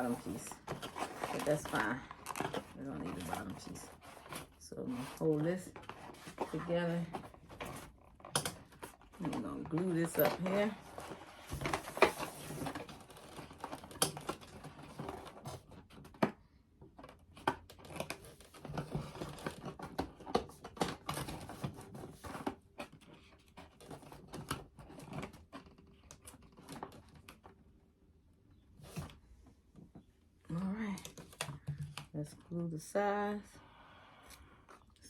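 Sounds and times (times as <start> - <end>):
foam board rustling and crinkling: 0.0 - 16.3.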